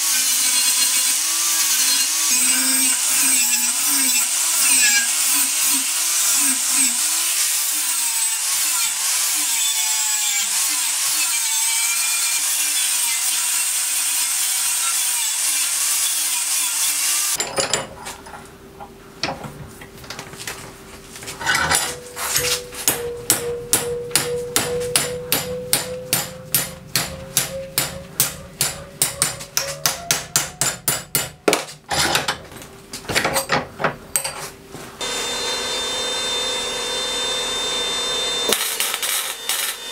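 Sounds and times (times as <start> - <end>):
angle grinder grinding steel: 0.0 - 17.4, 21.4 - 24.1, 35.0 - 39.9.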